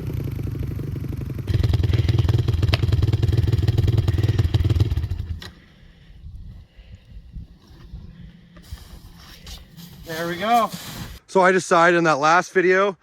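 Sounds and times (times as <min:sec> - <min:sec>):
small motorcycle engine running: 0:00.0 - 0:05.4.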